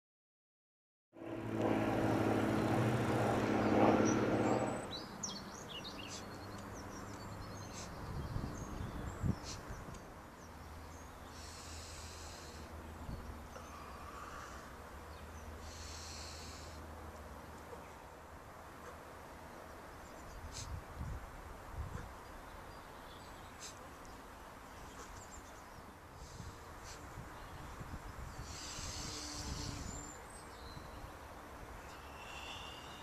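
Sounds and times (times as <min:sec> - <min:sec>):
loud low drawn-out tone: 0:01.2 - 0:04.9
small birds chirping: 0:04.0 - 0:18.1, 0:18.8 - 0:21.2, 0:21.8 - 0:33.0
high hissy noise: 0:15.6 - 0:16.9, 0:28.4 - 0:30.2.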